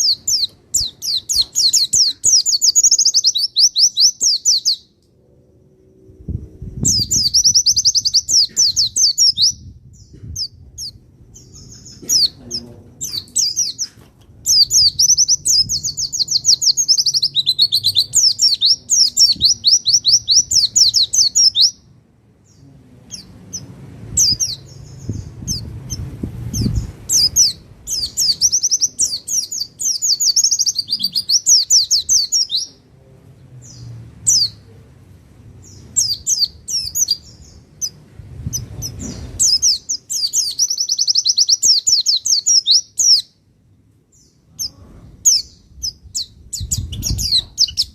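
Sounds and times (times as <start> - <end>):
bird high twittering song: 0.0 - 32.8, 33.6 - 34.7, 35.5 - 43.4, 44.1 - 47.9
faint low hum: 4.5 - 40.4.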